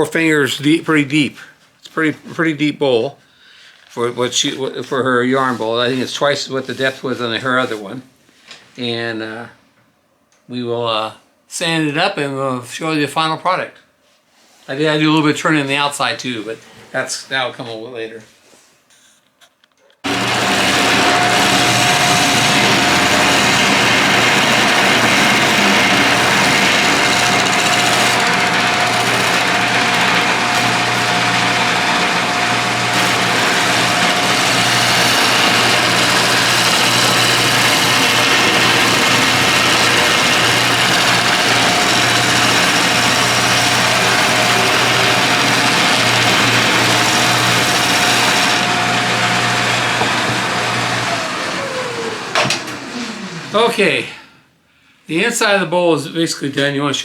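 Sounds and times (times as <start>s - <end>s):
rushing hiss of turning wood: 20.1s - 49.0s
wood lathe whine and hum: 20.1s - 53.7s.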